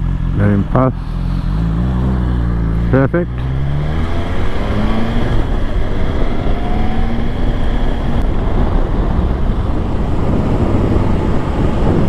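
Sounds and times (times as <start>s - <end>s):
motorcycle engine rising in pitch: 0.0s - 12.0s
wind buffeting microphone: 1.6s - 12.0s.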